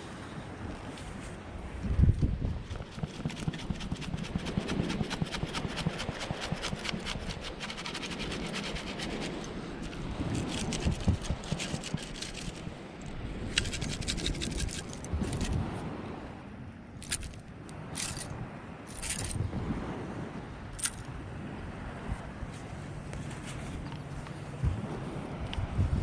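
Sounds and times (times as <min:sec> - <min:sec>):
sand scraping and rattling: 0:02.0 - 0:15.8, 0:17.0 - 0:19.4, 0:22.5 - 0:25.0.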